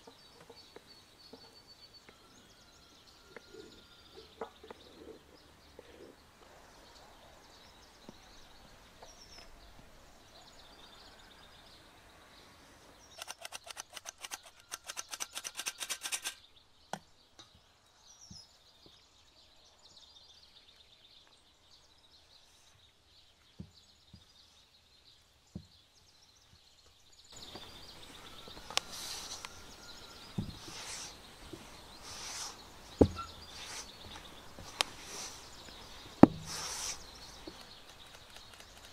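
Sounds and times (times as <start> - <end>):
birds chirping: 0.0 - 38.9
scattered clicks: 13.2 - 16.4, 37.5 - 38.9
cooking handling strokes: 30.6 - 31.2, 36.4 - 37.1.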